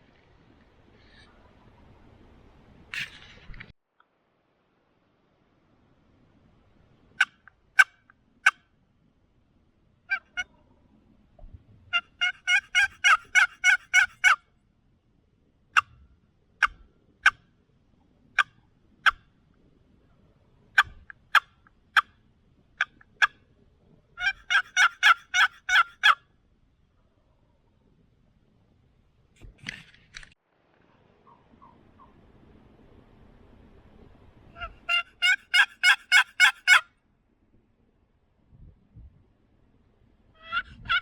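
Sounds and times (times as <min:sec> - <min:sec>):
turkey clucking and yelping: 0:07.2 - 0:08.6, 0:10.1 - 0:10.6, 0:11.9 - 0:14.4, 0:20.8 - 0:22.1, 0:24.2 - 0:26.2, 0:31.2 - 0:32.2, 0:34.6 - 0:36.9, 0:40.4 - 0:41.0.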